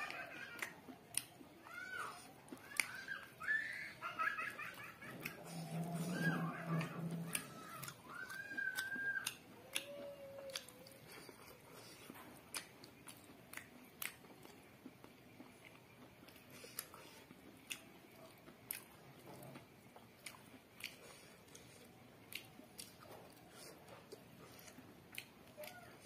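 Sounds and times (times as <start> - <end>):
close-up chewing: 0.0 - 26.0
mouth clicks and smacks: 0.5 - 1.5.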